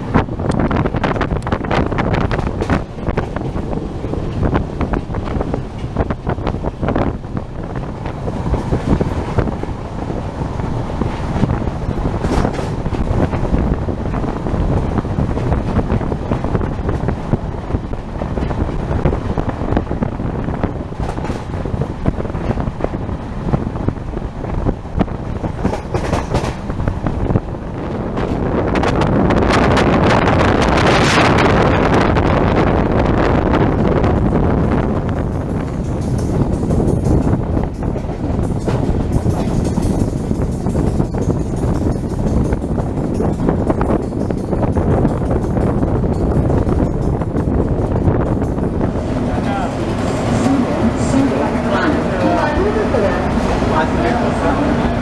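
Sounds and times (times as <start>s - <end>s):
train coach running noise: 0.0s - 55.0s
wind buffeting microphone: 0.0s - 55.0s.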